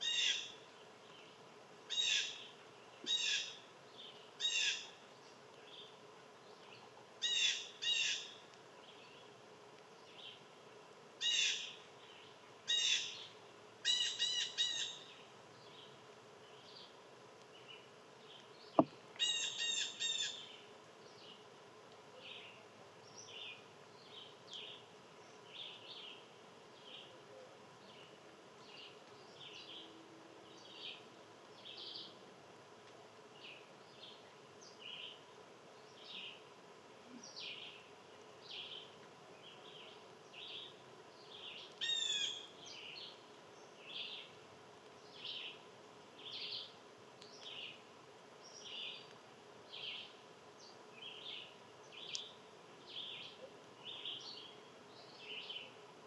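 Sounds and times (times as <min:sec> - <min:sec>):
small birds chirping: 0:37.1 - 0:55.8.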